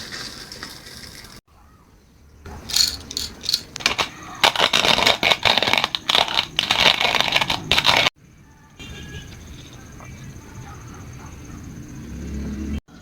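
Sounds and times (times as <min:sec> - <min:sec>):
coffee grinder crunching beans: 0:02.7 - 0:08.1.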